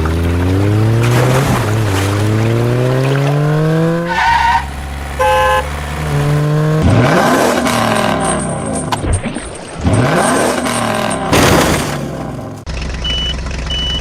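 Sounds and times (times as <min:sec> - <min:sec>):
vehicle engine revving: 0:00.0 - 0:08.9, 0:09.7 - 0:14.0
short horn-like beeps: 0:05.2 - 0:05.8.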